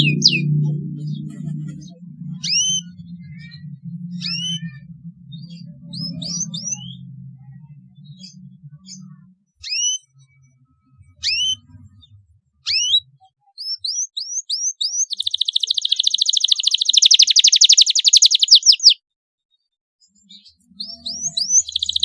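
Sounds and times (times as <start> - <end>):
canary singing: 0.0 - 19.0, 20.2 - 22.0.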